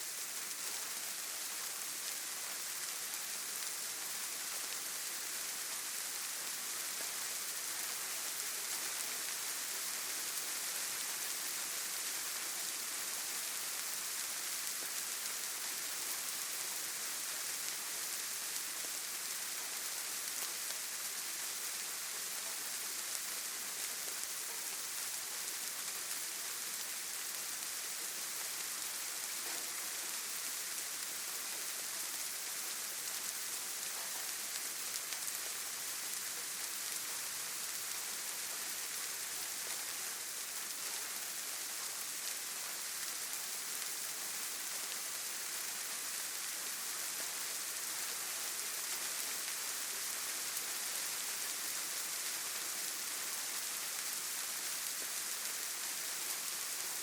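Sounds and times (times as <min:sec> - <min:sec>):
steady rain falling: 0:00.0 - 0:57.0
faint raindrop ticks: 0:22.4 - 0:47.7.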